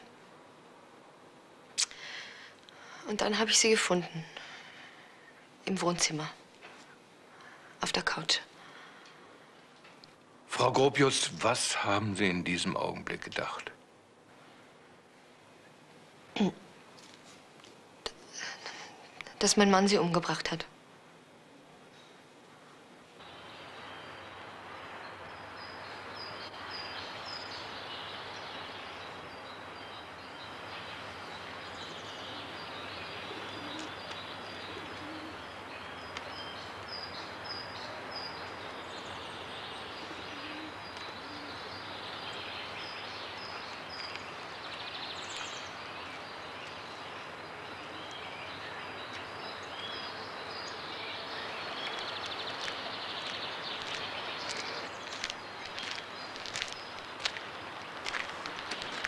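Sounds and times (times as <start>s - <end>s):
small birds calling: 21.9s - 59.0s
crisp footsteps: 51.8s - 59.0s.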